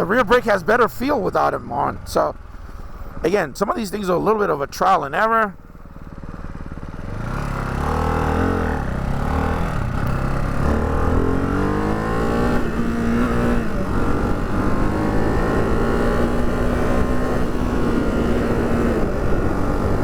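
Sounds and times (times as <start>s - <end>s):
motorcycle engine revving: 5.6s - 20.0s.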